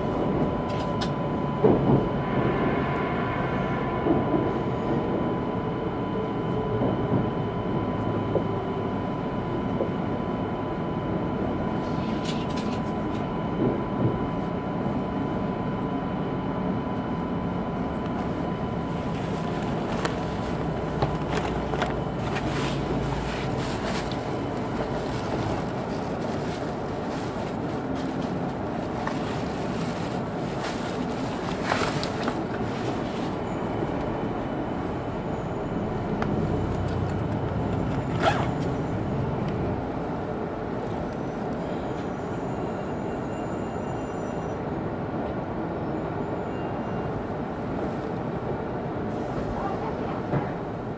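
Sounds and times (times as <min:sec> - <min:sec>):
train cabin rumble and hum: 0:00.0 - 0:50.9.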